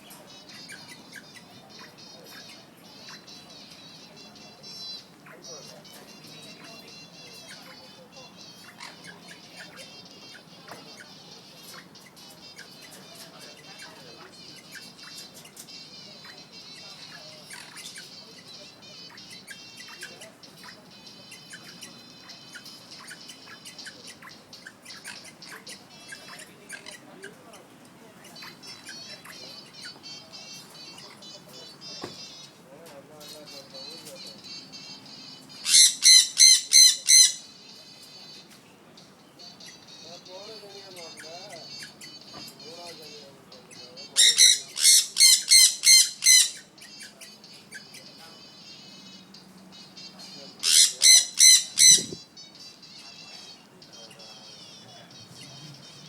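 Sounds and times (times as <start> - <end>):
parrot chirping: 0.0 - 56.0
parrot chirps and whistles: 35.6 - 37.5, 44.2 - 48.0, 50.6 - 52.3.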